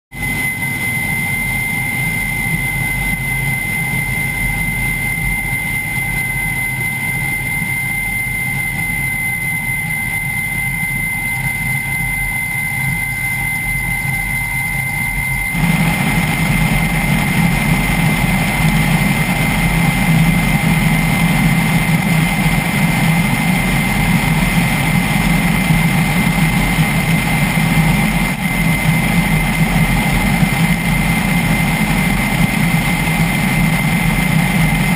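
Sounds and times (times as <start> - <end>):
helicopter engines and rotors: 0.2 - 34.9
high whine: 0.2 - 34.9.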